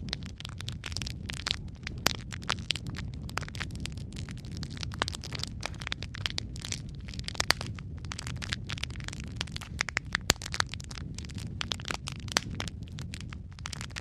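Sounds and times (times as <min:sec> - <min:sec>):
low rumble of burning: 0:00.0 - 0:14.0
wood fire crackling and popping: 0:00.0 - 0:14.0.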